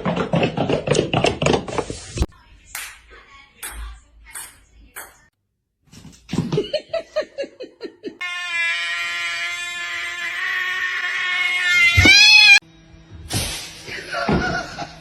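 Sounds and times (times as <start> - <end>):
cat yowling: 8.3 - 12.6
cat meowing: 9.4 - 12.6.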